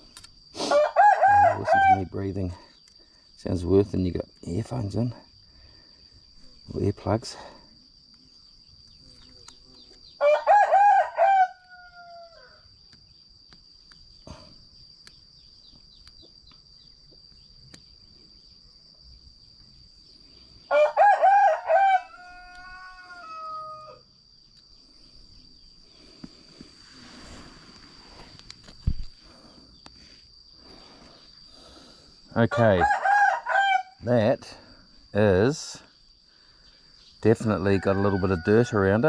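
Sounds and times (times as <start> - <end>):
high insect drone: 0.0 - 39.0
rooster crowing: 0.6 - 2.2, 10.2 - 12.7, 20.6 - 24.1, 32.5 - 34.0, 37.4 - 39.0.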